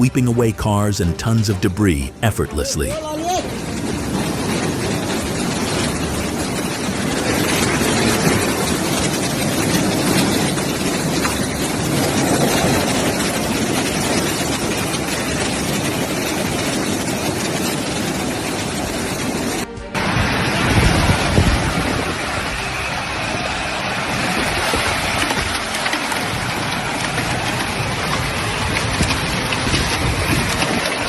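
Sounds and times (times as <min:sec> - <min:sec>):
floodwater rushing: 0:00.0 - 0:31.0.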